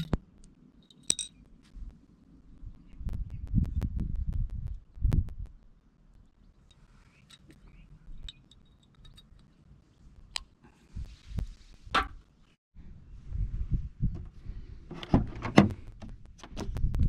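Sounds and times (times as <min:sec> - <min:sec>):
light clicks and clinks: 0:06.6 - 0:09.6.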